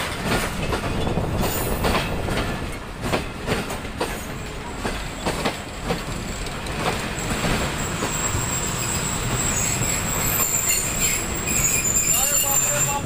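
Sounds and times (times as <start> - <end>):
train rumble: 0.0 - 13.0
wheels clicking over rail joints: 0.0 - 13.0
high squeal from train: 0.9 - 2.1, 4.1 - 13.0.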